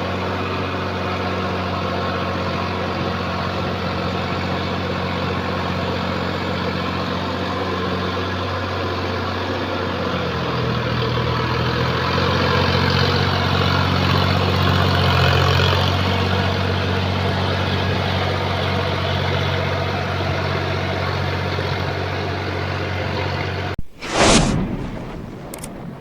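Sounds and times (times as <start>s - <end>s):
tractor diesel engine running: 0.0s - 23.7s
loud sudden hit: 23.8s - 26.0s.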